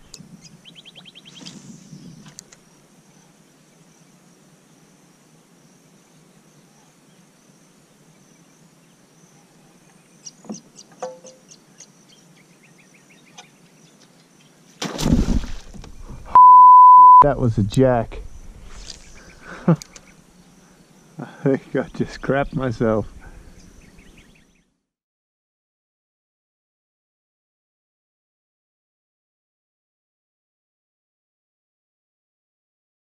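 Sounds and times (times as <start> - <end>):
small birds chirping and trilling: 0.0 - 14.8, 18.2 - 24.7.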